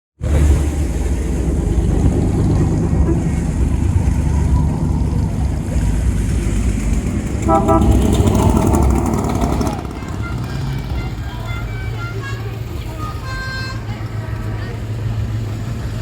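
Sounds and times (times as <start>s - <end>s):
car engines cruising: 0.2s - 16.0s
pitched tone with overtones: 7.4s - 11.2s.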